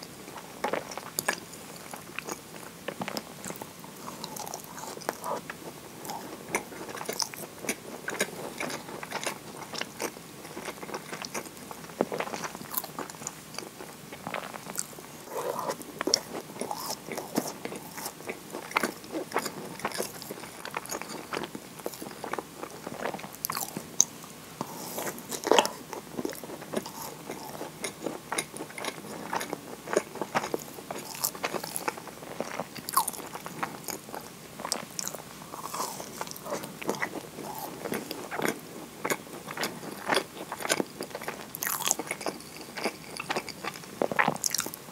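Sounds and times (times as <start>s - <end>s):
person biting and chewing: 24.6s - 34.0s, 34.6s - 44.8s.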